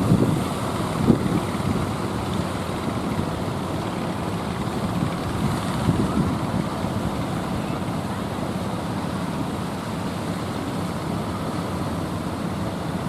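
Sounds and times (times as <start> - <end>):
wind buffeting microphone: 0.0 - 8.0
sea rushing: 0.0 - 13.0
ship engine rumble: 0.0 - 13.0
strong wind: 0.0 - 13.0.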